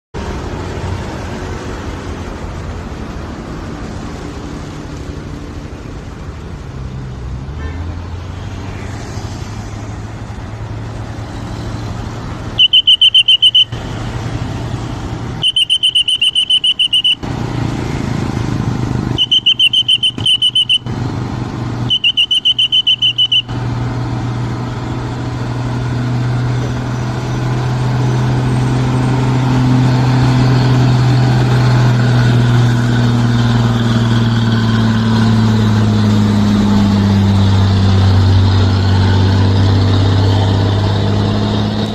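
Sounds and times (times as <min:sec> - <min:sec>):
heavy vehicle engine labouring: 0:00.2 - 0:41.9
trilling whistle blasts: 0:12.6 - 0:13.8, 0:15.4 - 0:17.2, 0:19.2 - 0:20.9, 0:21.9 - 0:23.6.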